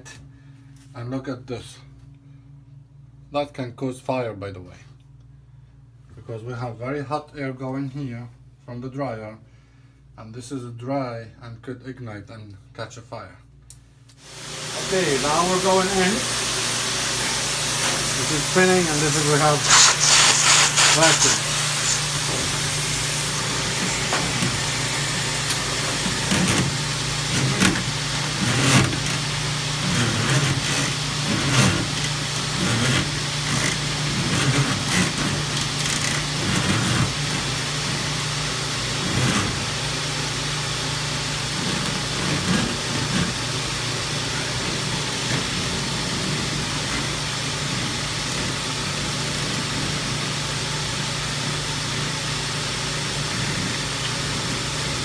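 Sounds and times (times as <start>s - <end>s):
vent cleaning machine humming: 14.1s - 55.0s.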